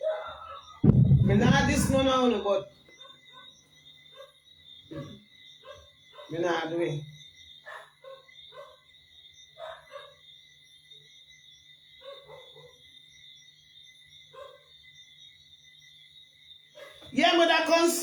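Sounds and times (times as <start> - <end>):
distant dog barking: 0.0 - 2.1, 2.9 - 6.4, 7.6 - 8.9, 9.5 - 10.3, 12.0 - 12.9, 14.3 - 14.8, 16.7 - 17.2.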